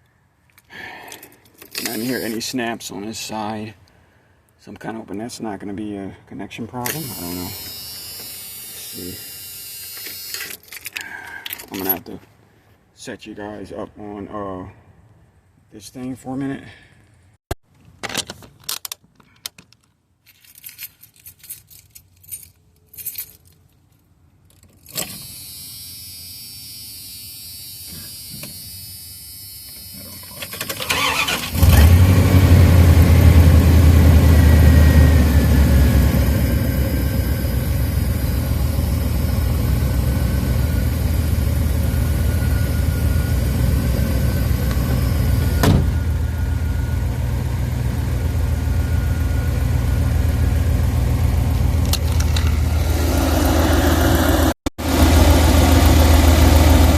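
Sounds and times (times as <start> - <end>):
keys jangling: 10.4 - 12.0, 20.2 - 25.0
van engine starting and idling: 30.4 - 56.9.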